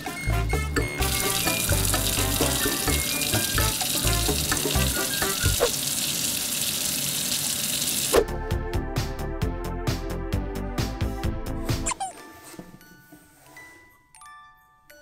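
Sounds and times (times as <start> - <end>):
tap water running into sink: 0.9 - 8.2.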